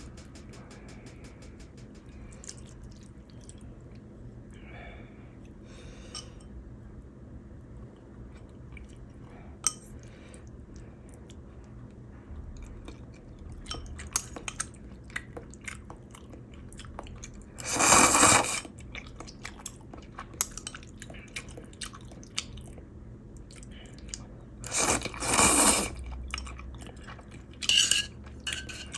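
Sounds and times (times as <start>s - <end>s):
sharp clicks: 0.0s - 2.1s
chewing and crunching: 7.8s - 28.9s.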